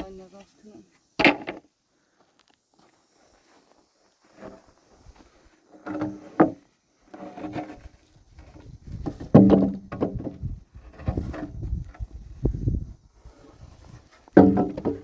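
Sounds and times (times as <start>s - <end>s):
wood creaking and scraping: 5.6s - 15.0s.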